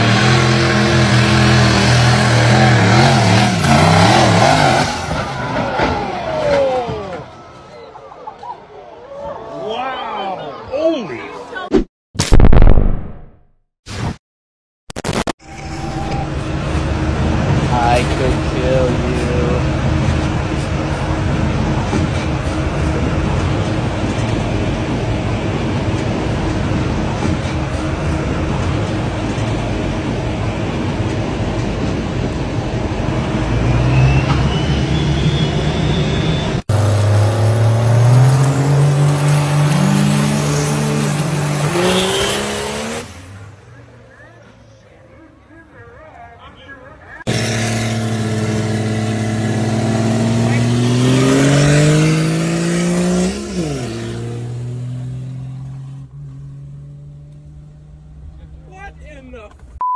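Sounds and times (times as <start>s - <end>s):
pickup engine revving hard: 0.0s - 5.2s, 36.7s - 43.2s, 47.3s - 58.1s
heavy engine rumbling: 0.0s - 8.2s, 15.4s - 59.8s
whistle rising in pitch: 15.4s - 16.4s, 33.6s - 36.6s.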